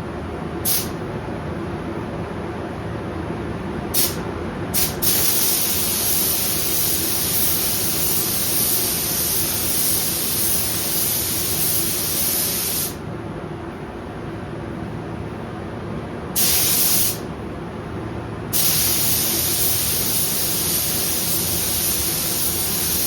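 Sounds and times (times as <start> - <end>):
spray gun hissing: 0.6 - 0.9, 4.8 - 13.0, 16.4 - 17.2, 18.5 - 23.0.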